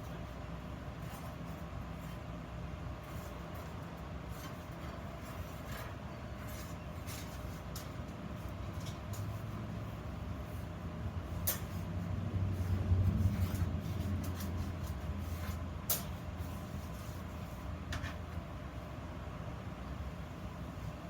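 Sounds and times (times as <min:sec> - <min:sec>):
light clicks and scrapes: 0:03.0 - 0:09.6, 0:10.4 - 0:18.5.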